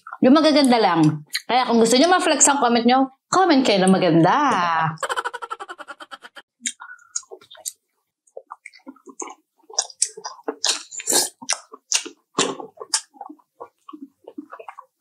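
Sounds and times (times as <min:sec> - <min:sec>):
mouth smacks: 0:05.0 - 0:15.0
people chewing crunchy food: 0:05.0 - 0:15.0.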